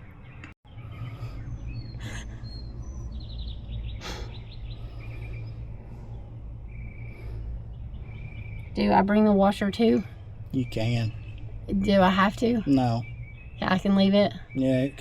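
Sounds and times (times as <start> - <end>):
small birds chirping: 0.0 - 15.0
low rumble: 0.7 - 14.8.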